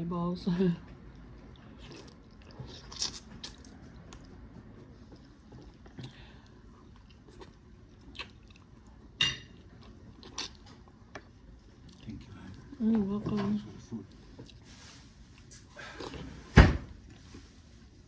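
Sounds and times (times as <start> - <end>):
person chewing and lip smacking: 1.1 - 9.0, 9.6 - 12.2.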